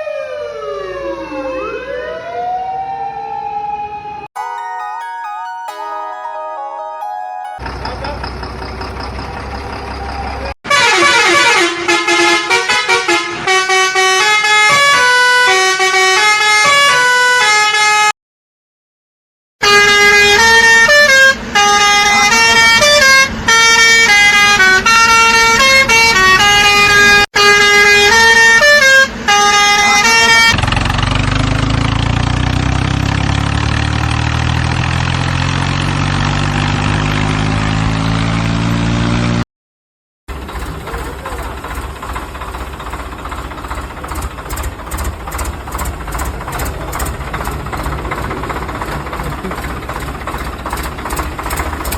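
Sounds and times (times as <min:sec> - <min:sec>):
cartoon truck engine running: 0:40.3 - 0:51.9.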